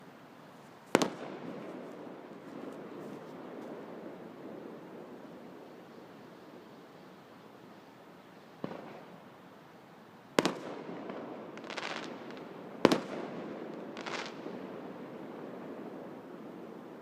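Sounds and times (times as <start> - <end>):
fireworks crackle: 0.8 - 4.0, 10.4 - 16.3
fireworks bangs: 0.9 - 1.8, 10.4 - 15.1.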